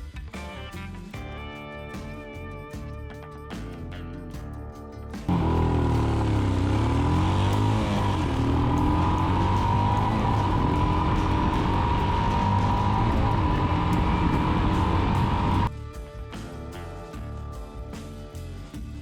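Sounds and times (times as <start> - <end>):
motorcycle engine running: 5.2 - 16.1.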